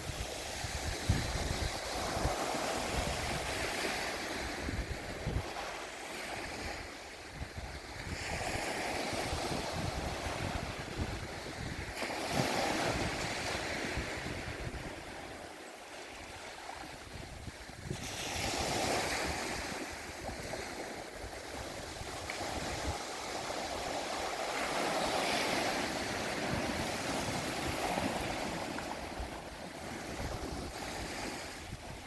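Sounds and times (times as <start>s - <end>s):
wind buffeting microphone: 0.0s - 32.0s
sea waves washing onto rocks: 8.0s - 32.0s.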